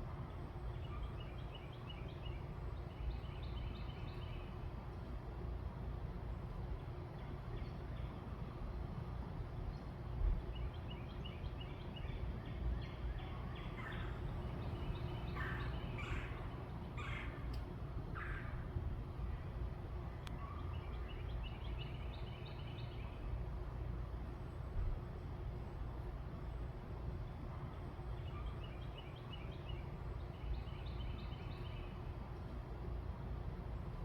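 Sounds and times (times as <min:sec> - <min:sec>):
low background rumble: 0:00.0 - 0:34.0
birds chirping: 0:10.6 - 0:17.6
harsh bird calls: 0:13.3 - 0:17.5.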